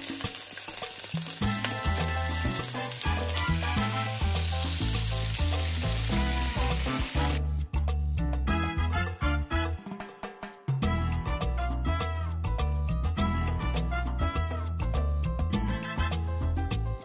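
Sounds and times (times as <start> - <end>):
clams sizzling in oil: 0.0 - 7.4
background music with bass: 1.4 - 17.0.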